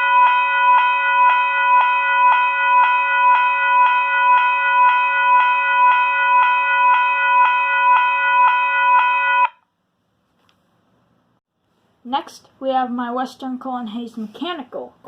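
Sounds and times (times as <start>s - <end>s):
electronic railroad crossing bell: 0.0s - 9.5s.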